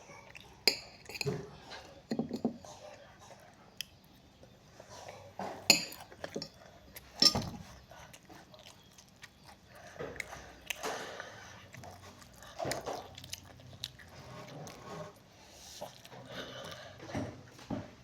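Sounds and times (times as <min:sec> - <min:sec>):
chewing chicken: 0:02.6 - 0:17.4.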